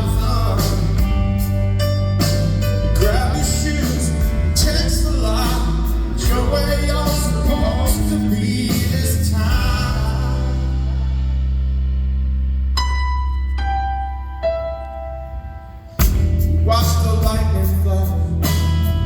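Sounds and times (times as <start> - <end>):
man singing: 0.0 - 1.5, 2.8 - 11.2, 16.3 - 19.0
rock band playing: 0.0 - 19.0.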